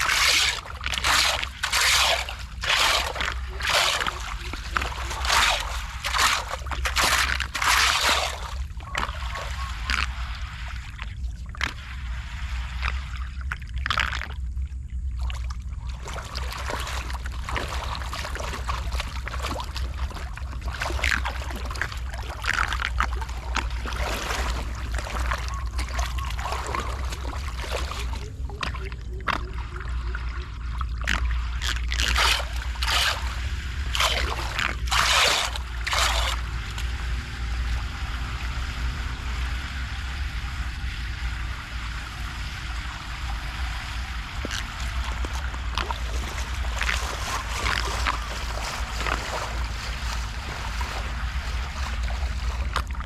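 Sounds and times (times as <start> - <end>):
water rushing: 0.0 - 14.3, 15.0 - 53.0
low rumble: 0.0 - 53.0
water splashing and sloshing: 0.0 - 53.0.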